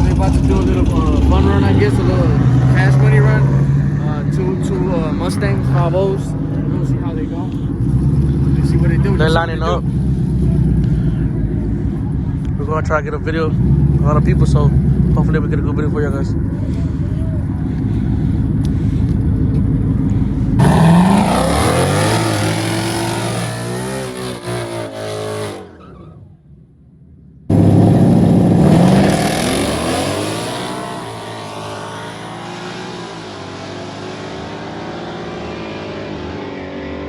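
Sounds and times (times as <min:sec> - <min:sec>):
cars idling: 0:00.0 - 0:33.7
cars launching at full throttle: 0:13.3 - 0:26.8, 0:27.5 - 0:37.0.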